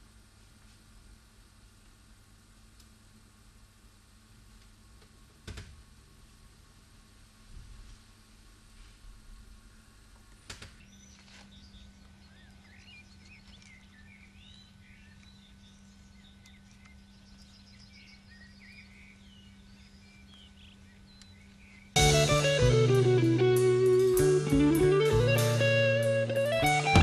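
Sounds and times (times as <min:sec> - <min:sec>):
birds chirping faintly: 0:10.3 - 0:27.0
electric guitar music: 0:22.0 - 0:27.0.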